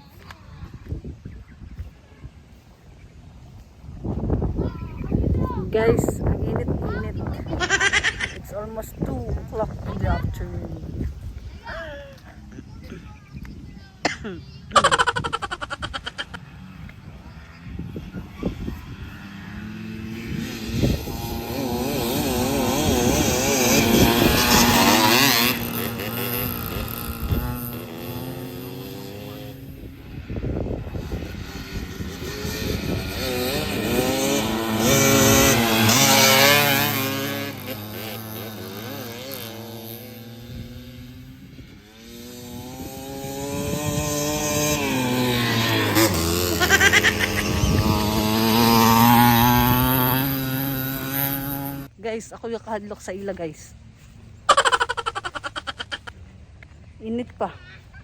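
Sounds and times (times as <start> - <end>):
dirt bike engine revving: 14.8 - 52.0.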